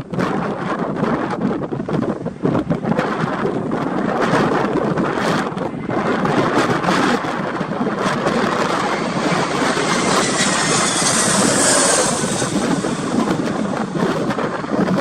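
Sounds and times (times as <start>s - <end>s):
jet engines passing close: 6.0s - 15.0s.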